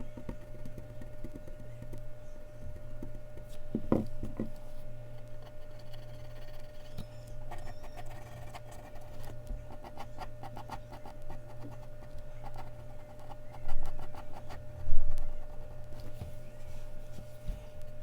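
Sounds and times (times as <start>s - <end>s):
steady low hum: 0.0s - 18.0s
pencil scratching on paper: 5.4s - 14.6s.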